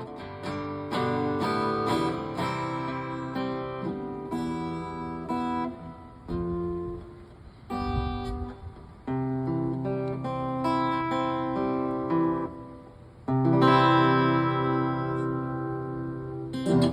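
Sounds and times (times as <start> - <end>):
acoustic guitar strummed chords: 0.0 - 16.9.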